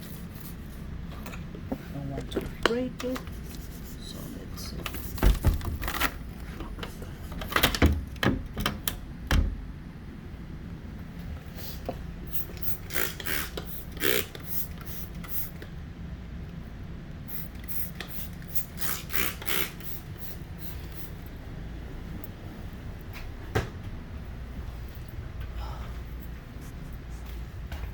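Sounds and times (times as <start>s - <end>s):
steady low hum: 0.0s - 27.9s
window clicks and knocks: 5.1s - 6.2s, 7.5s - 9.6s.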